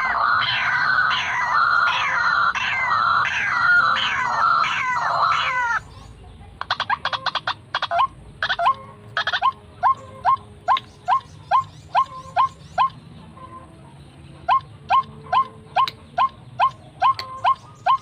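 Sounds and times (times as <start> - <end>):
bird calls with rising sweep: 0.0 - 6.0.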